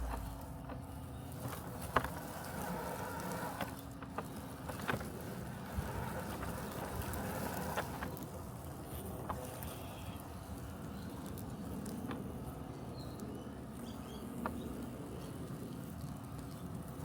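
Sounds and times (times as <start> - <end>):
robotic lawn mower humming: 0.0 - 10.0.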